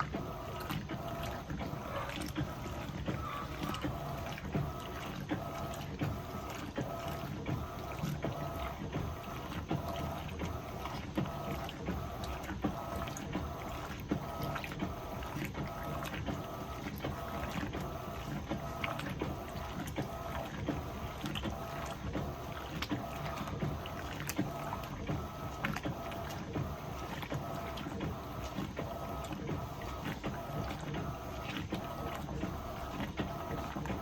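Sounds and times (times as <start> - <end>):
washing machine motor hum: 0.0 - 34.0
water sloshing in washing machine: 0.0 - 34.0.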